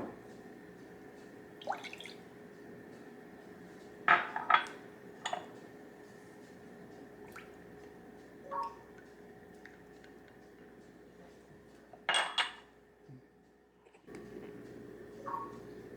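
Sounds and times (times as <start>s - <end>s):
faint steady hum: 0.0s - 15.9s
dishes and utensils clinking: 4.1s - 5.5s, 12.1s - 12.7s.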